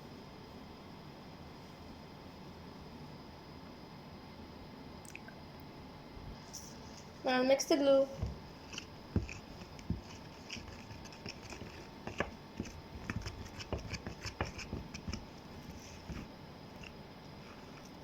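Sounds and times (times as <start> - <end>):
stirrer scraping a bowl: 8.2 - 18.0.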